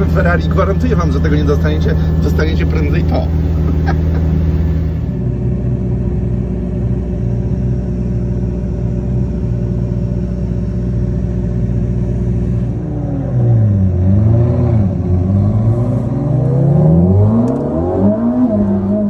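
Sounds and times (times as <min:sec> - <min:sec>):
car engine idling: 0:00.0 - 0:14.2.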